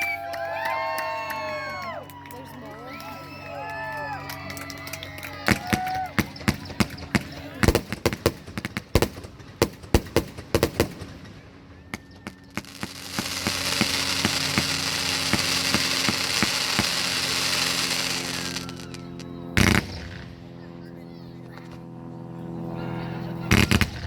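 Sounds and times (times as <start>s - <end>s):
fireworks bangs and cracks: 3.7s - 20.6s, 23.5s - 24.0s
loud steady hiss: 12.6s - 19.0s.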